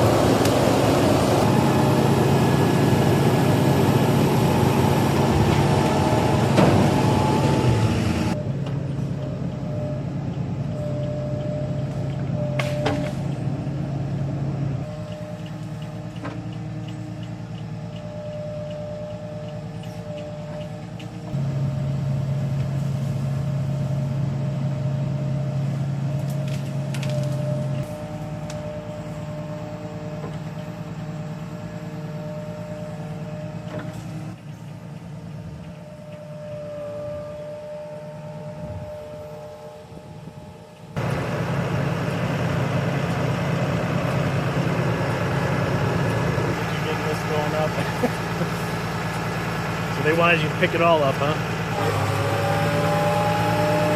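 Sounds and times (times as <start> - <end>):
heavy machinery engine running: 0.0 - 53.9.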